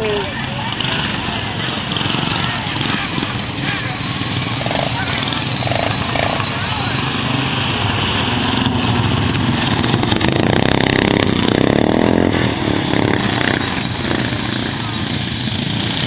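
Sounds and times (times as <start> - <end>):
lawn mower engines running: 0.0 - 16.0
mower engine revving close by: 4.3 - 16.0.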